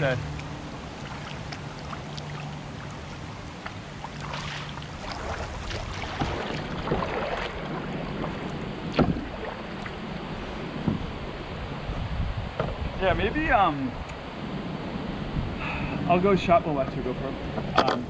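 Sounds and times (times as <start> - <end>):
paddle splashing in water: 0.2 - 11.2
wind on microphone: 2.6 - 17.8.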